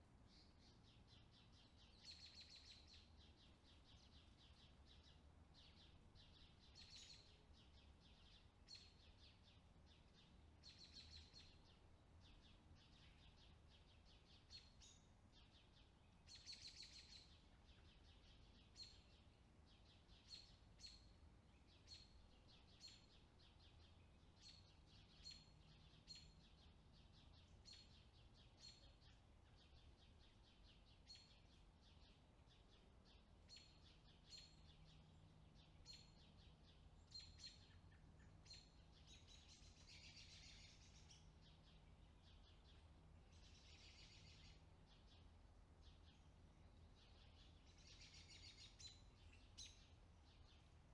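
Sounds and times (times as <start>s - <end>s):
faint low hum: 0.0s - 50.9s
faint bird chirps: 0.2s - 50.9s.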